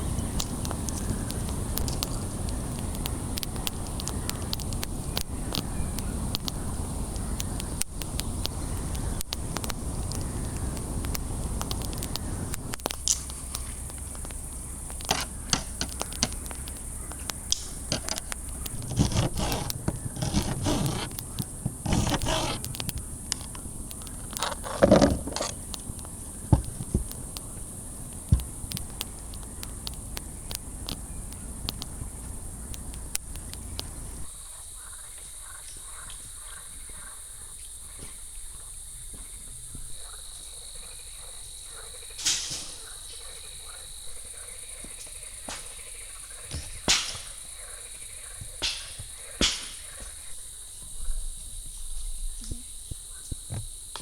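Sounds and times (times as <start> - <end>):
insects chirring: 0.0 - 54.0
sharp clicks and knocks: 0.1 - 34.3.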